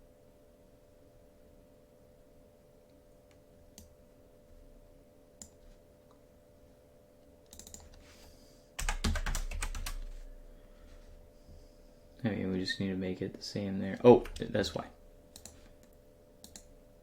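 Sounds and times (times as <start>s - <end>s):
faint steady hum: 0.0s - 17.0s
typing on a keyboard: 7.5s - 8.0s, 8.8s - 10.1s.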